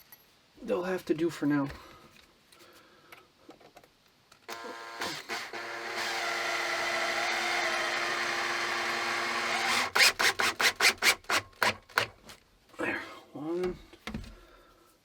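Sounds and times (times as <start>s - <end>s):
power drill motor whine: 4.5s - 11.2s.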